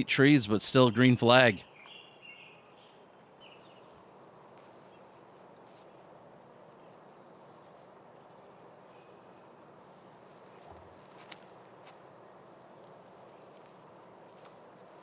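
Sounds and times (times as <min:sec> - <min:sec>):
bird chirp: 0:01.6 - 0:05.2.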